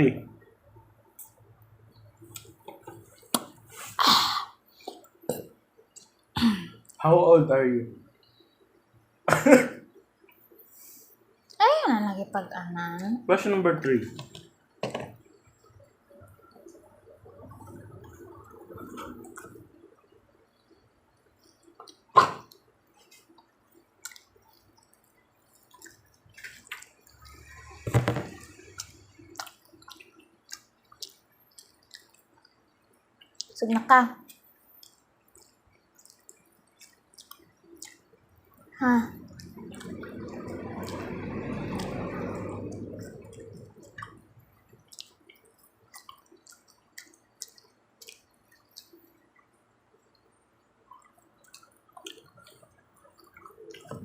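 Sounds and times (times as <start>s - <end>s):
chewing with wet smacking clicks: 2.2s - 3.6s, 4.8s - 6.2s, 15.6s - 27.7s, 28.5s - 54.0s
low rumble: 39.0s - 44.4s.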